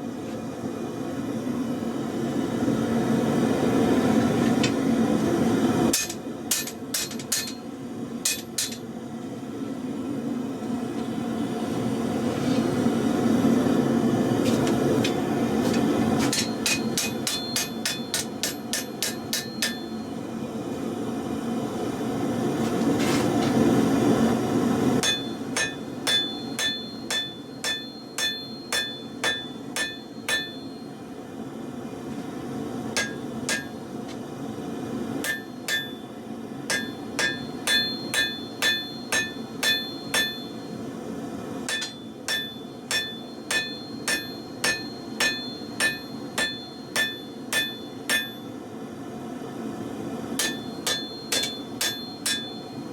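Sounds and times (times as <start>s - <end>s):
hammer striking steel on anvil: 5.9s - 8.9s, 14.6s - 20.1s, 25.0s - 31.0s, 33.0s - 34.2s, 35.2s - 40.8s, 41.7s - 48.6s, 50.4s - 52.9s.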